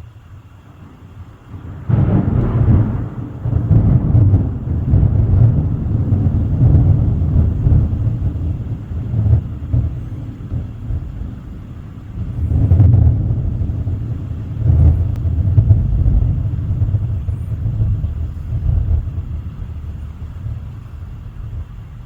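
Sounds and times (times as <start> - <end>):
thunder rumbling: 0.0 - 22.0.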